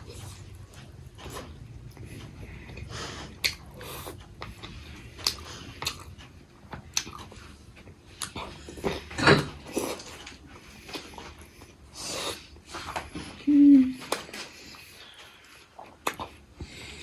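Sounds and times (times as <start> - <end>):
person chewing and eating: 0.0 - 17.0
mouth smacks: 16.0 - 16.4.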